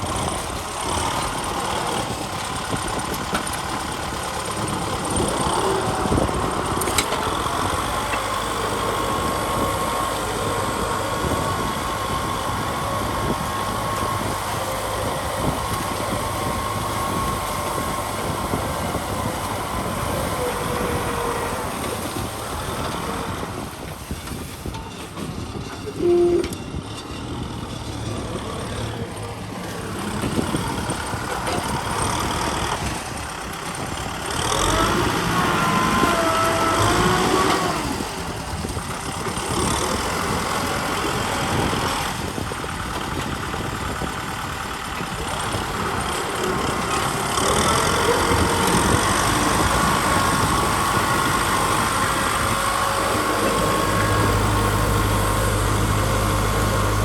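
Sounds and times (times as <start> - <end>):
tractor diesel engine running: 0.0 - 57.0
loud tone: 25.9 - 26.6.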